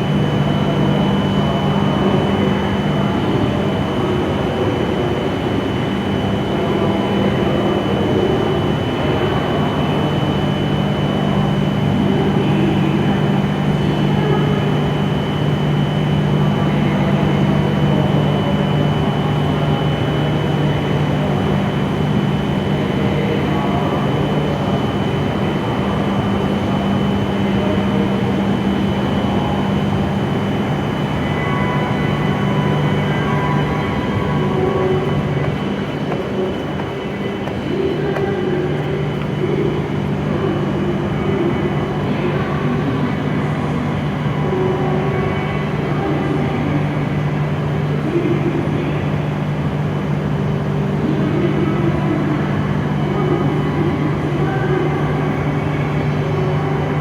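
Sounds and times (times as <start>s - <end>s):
faint high whine: 0.0s - 43.4s
train equipment low hum: 0.0s - 57.0s.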